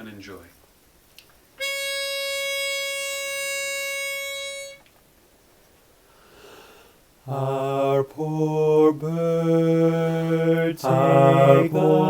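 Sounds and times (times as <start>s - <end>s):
pitch pipe reedy tone: 1.6s - 4.9s.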